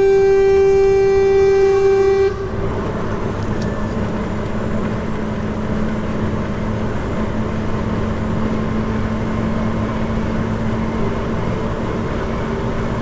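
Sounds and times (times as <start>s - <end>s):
loud car horn: 0.0s - 2.7s.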